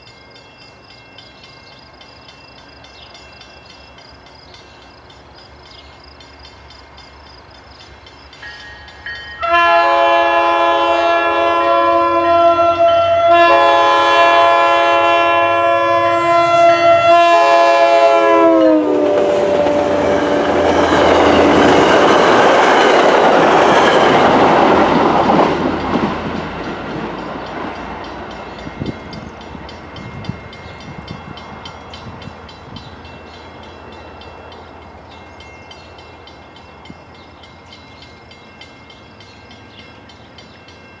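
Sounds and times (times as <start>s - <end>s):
train rushing by: 0.0s - 41.0s
train air horn blasts: 9.4s - 20.7s.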